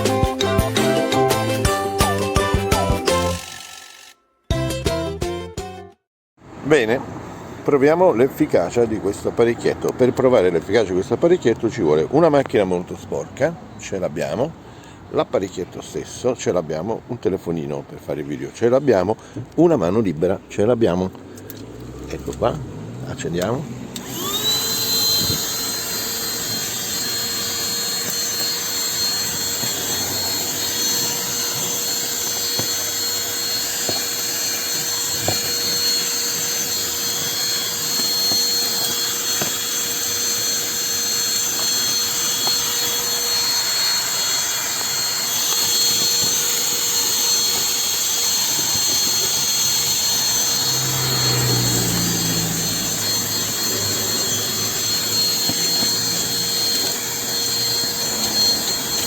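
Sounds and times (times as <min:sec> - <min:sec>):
handheld vacuum cleaner running: 0:02.4 - 0:04.2, 0:23.9 - 0:59.0.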